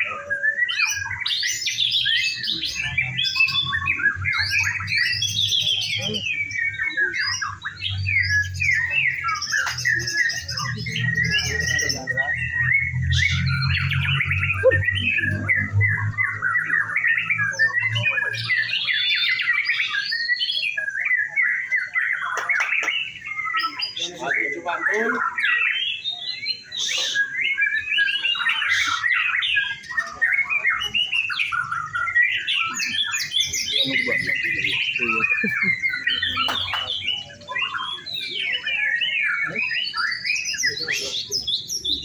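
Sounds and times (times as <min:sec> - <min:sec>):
birds singing whistled trills: 0:00.0 - 0:42.0.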